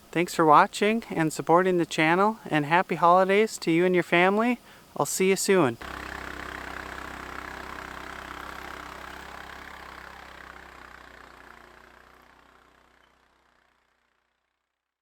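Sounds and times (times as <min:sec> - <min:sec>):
atv engine running: 0:05.8 - 0:14.5.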